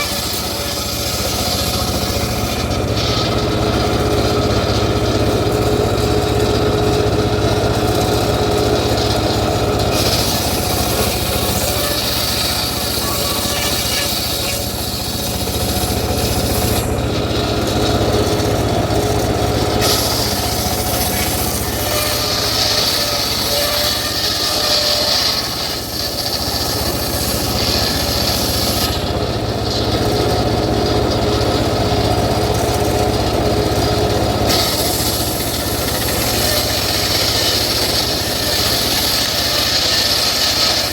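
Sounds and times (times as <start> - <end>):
engine low hum: 0.0 - 24.6
circular saw cutting wood: 0.0 - 40.9.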